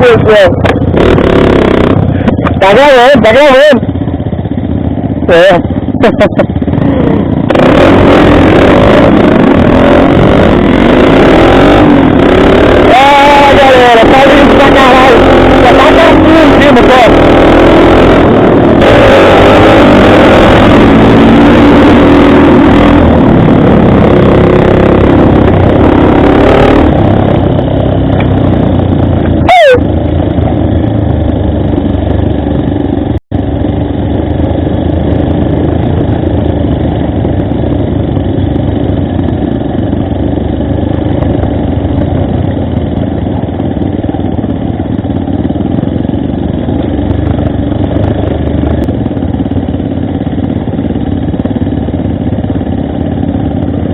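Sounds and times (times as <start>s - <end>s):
motorcycle engine running: 0.0s - 53.9s
wind noise on microphone: 34.4s - 40.0s.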